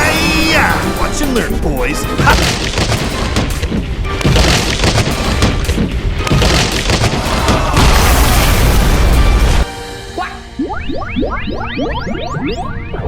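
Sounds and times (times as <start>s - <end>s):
loud background music: 0.0s - 10.6s
heavy booming hits: 2.2s - 9.6s.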